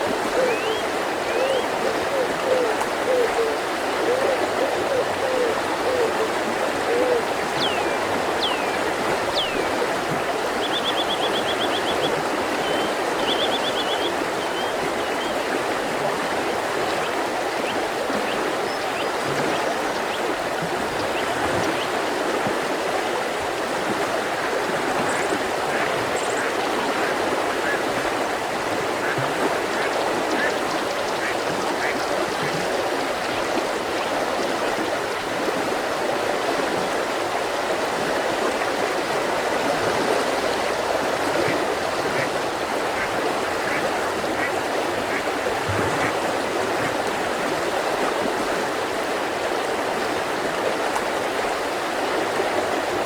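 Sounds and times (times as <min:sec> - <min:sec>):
river flowing: 0:00.0 - 0:53.0
low repeated bird calls: 0:00.3 - 0:06.3, 0:06.9 - 0:09.7, 0:10.6 - 0:15.4
birds chirping: 0:00.4 - 0:01.6, 0:07.5 - 0:09.7, 0:10.6 - 0:15.4.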